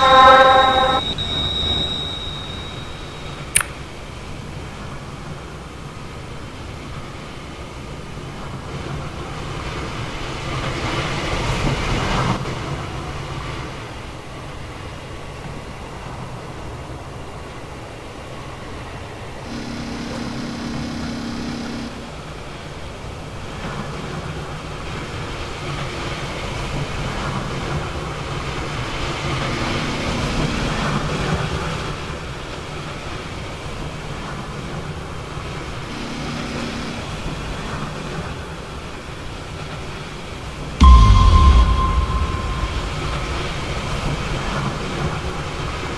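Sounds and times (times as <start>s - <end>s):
loud rushing noise: 40.8s - 44.3s.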